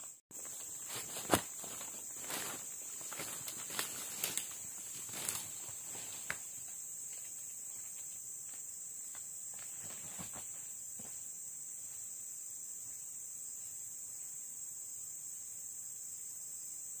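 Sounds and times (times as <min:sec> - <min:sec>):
shrill insect chorus: 0:00.0 - 0:17.0
footstep crunches: 0:00.3 - 0:11.2
faint rustling clicks: 0:01.0 - 0:07.3.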